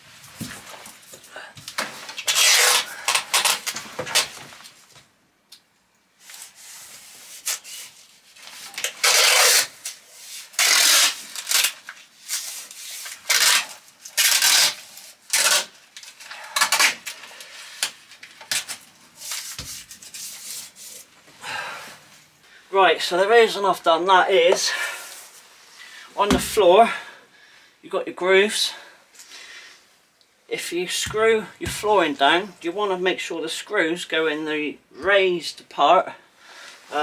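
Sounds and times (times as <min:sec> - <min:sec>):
masking tape tearing off roll: 0:01.7 - 0:04.4, 0:07.2 - 0:21.1
hand rubbing tape on metal: 0:02.1 - 0:04.3, 0:06.2 - 0:17.2, 0:17.9 - 0:21.1.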